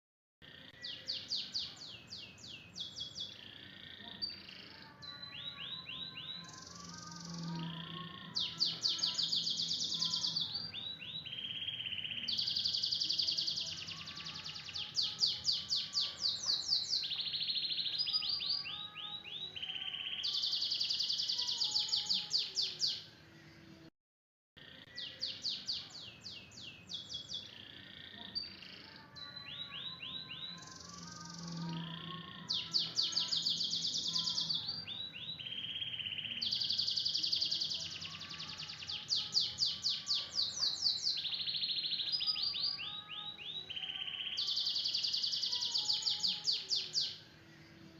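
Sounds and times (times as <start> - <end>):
canary singing trills: 0.4 - 23.1, 24.6 - 47.9.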